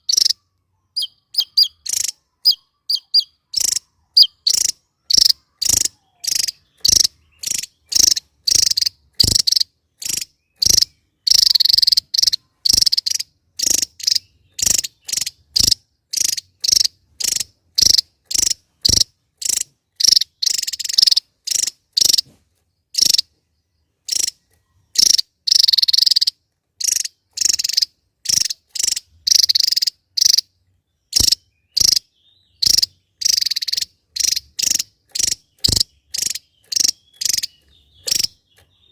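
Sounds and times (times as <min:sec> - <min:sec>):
bird giving sharp high calls: 0:00.0 - 0:22.3, 0:31.1 - 0:38.9.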